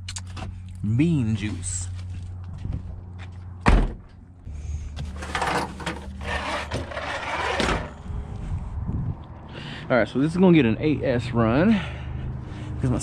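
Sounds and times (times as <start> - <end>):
heavy thud: 3.6 - 4.0
rustling and clattering handling: 5.0 - 8.0.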